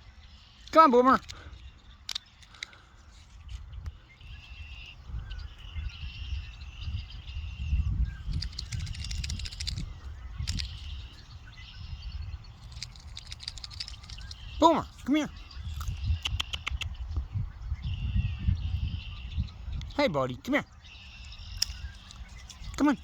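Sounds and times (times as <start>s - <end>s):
birds chirping: 0.0s - 23.0s
wind rumble on microphone: 0.0s - 23.0s
short clicks and rustles: 0.6s - 3.6s, 8.3s - 11.1s, 12.6s - 15.1s.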